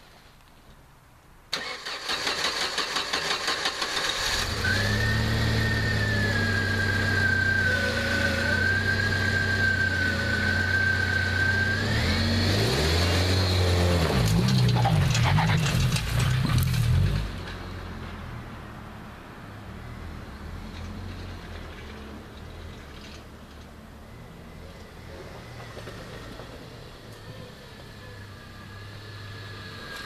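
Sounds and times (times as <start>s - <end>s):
engine starter cranking: 1.5s - 4.7s
car engine idling and revving: 2.6s - 30.0s.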